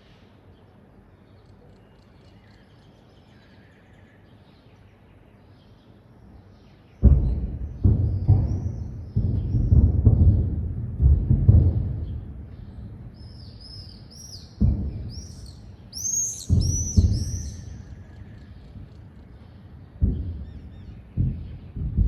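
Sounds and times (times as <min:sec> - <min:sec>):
small birds chirping: 0:00.0 - 0:22.0
explosions booming: 0:07.0 - 0:13.9, 0:14.5 - 0:19.2, 0:19.9 - 0:22.0.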